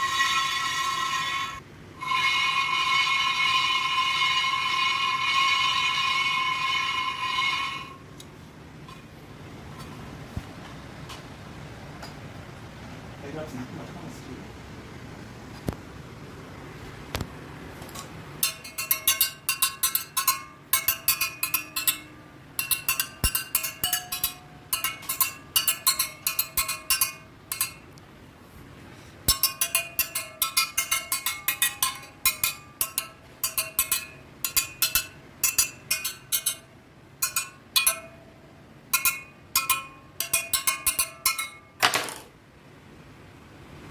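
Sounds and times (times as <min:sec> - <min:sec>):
metal tool pinging wire spokes: 0:17.9 - 0:28.0, 0:29.2 - 0:42.0.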